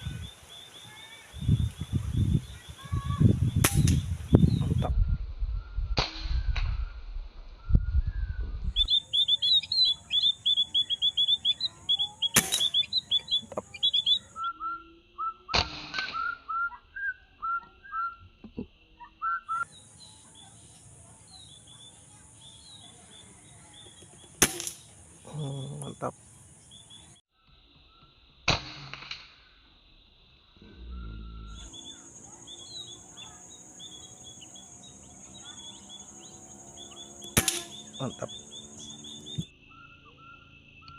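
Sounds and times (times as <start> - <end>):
small birds chirping: 0.0 - 5.9, 7.6 - 15.5, 16.6 - 28.2, 30.6 - 40.9
gunshot cracks: 3.6 - 4.1, 12.4 - 12.9, 24.4 - 24.8, 28.5 - 29.2, 37.3 - 37.8.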